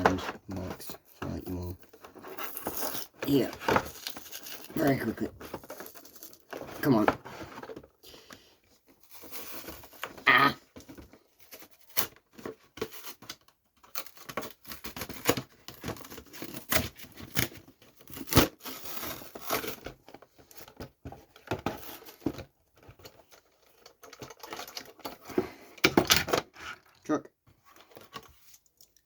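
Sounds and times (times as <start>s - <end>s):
packaging tearing and crinkling: 2.2s - 7.0s, 13.9s - 20.1s.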